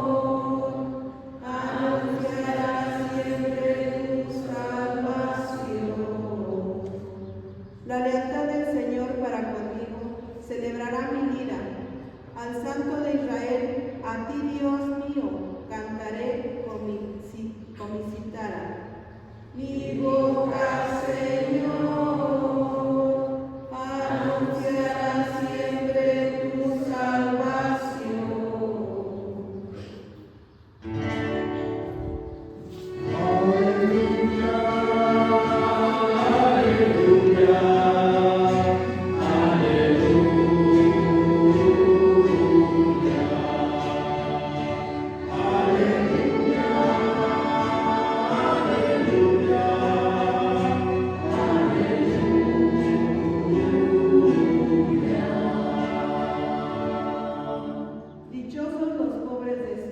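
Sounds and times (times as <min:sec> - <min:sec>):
choir singing sacred song: 0:00.0 - 0:09.2, 0:19.1 - 0:30.1, 0:32.0 - 0:58.3.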